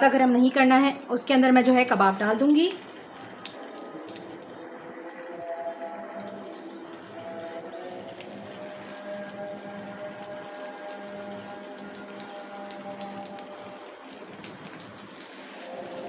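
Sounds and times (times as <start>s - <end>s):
meat sizzling in frying pan: 11.7s - 16.0s.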